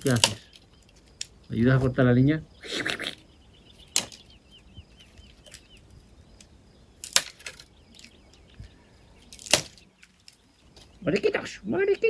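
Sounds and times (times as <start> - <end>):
axe chopping firewood: 0.0 - 0.5, 3.9 - 4.2, 7.0 - 7.6, 9.3 - 9.8.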